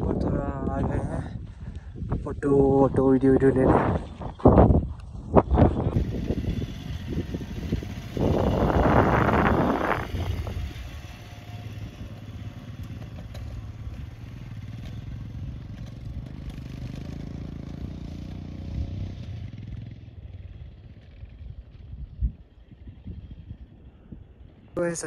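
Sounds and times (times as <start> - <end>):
motorcycle engine running: 3.3 - 25.0.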